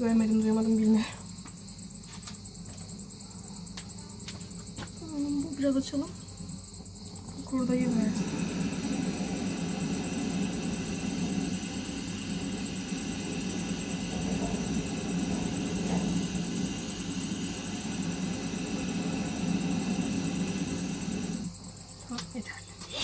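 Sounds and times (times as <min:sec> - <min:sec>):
crickets chirping: 0:00.0 - 0:23.0
gas burner flame rushing: 0:06.4 - 0:21.6.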